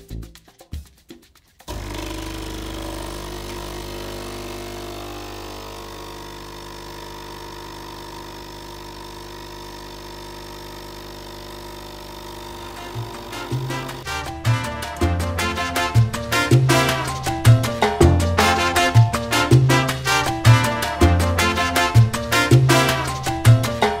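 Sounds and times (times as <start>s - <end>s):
espresso machine pump humming: 1.7s - 14.1s.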